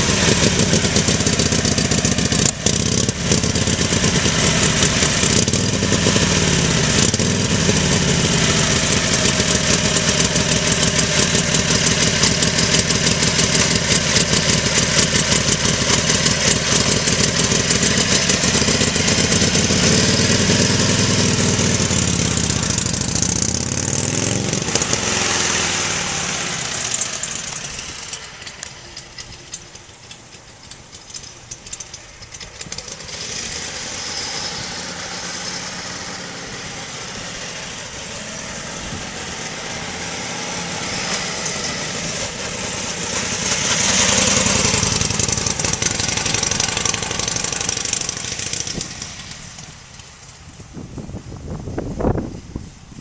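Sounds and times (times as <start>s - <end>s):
motorcycle engine running: 0.0s - 52.6s.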